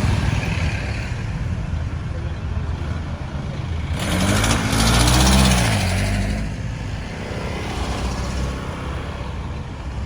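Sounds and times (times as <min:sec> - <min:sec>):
vehicle passing by: 0:03.8 - 0:10.0.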